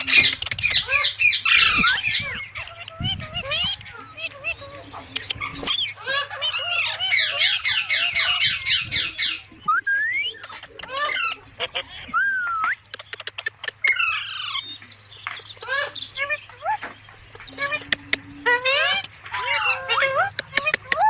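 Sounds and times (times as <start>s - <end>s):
parakeets squawking: 0.0s - 21.0s
rising bird whistles: 8.0s - 10.5s, 12.1s - 12.8s.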